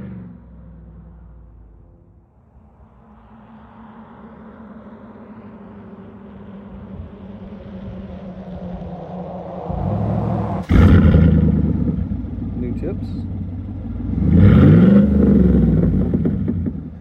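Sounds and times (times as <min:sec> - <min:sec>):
pickup truck engine and exhaust: 0:00.0 - 0:17.0.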